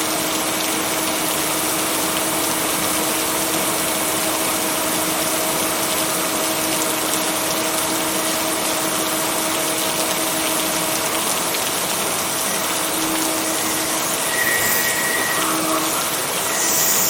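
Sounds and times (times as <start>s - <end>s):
heavy rain hissing: 7.0s - 17.0s.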